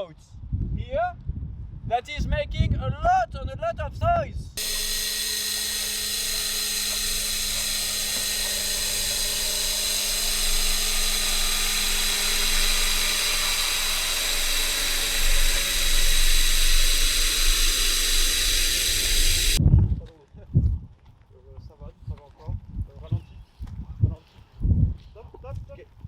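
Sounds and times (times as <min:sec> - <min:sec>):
boat motor whine underwater: 0:04.6 - 0:19.6.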